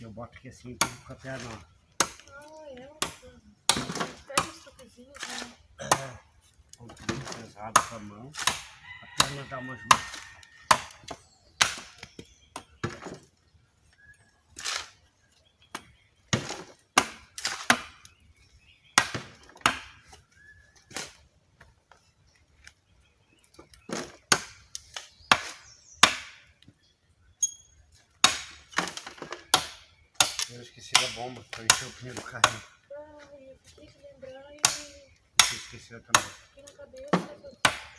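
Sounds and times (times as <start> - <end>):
shovel striking rooty earth: 28.2 - 32.8, 34.6 - 36.5.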